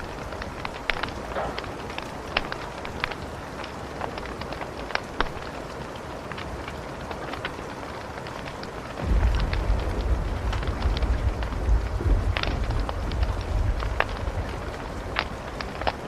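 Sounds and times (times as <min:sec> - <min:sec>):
wood fire crackling: 0:00.0 - 0:16.0
deep low rumble: 0:09.0 - 0:15.9.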